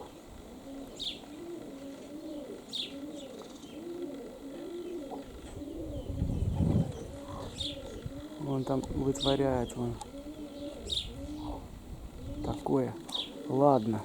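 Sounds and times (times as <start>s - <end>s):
pigeons cooing: 0.0s - 14.0s
small bird chirping: 0.8s - 14.0s
wind rumbling on microphone: 5.2s - 12.9s.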